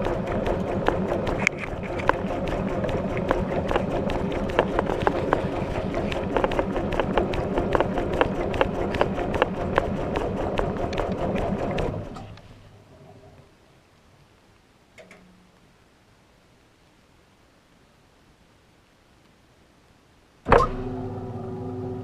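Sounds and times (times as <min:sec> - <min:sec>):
water churning in washing machine: 0:00.0 - 0:12.2
sharp clicks and knocks: 0:00.0 - 0:12.5, 0:15.0 - 0:15.4.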